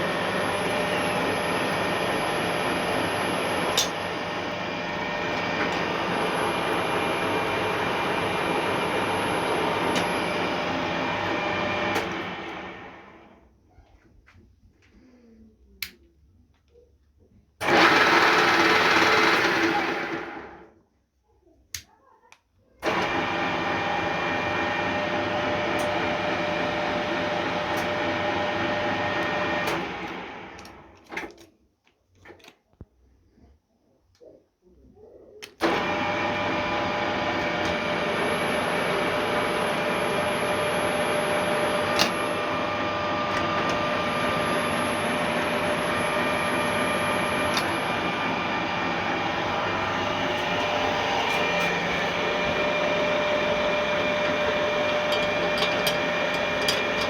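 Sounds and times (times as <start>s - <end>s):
milling machine motor running: 0.0s - 13.2s, 17.6s - 20.6s, 35.6s - 57.0s.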